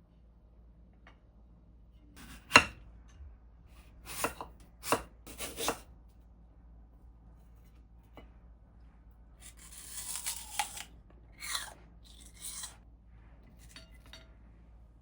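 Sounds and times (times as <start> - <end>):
food rustling and crunching: 9.4 - 12.8.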